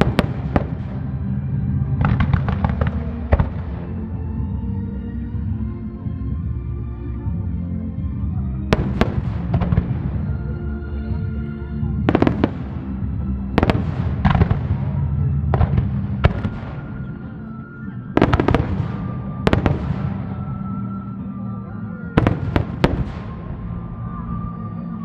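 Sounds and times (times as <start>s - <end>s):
fireworks bursting: 0.0s - 4.1s, 8.7s - 10.4s, 12.1s - 21.2s, 22.1s - 24.3s
music playing: 0.0s - 25.0s.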